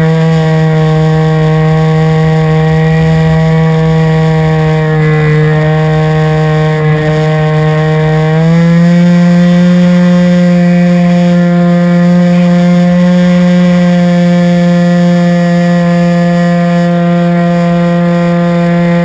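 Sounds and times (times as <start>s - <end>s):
model airplane engine buzzing: 0.0s - 19.0s.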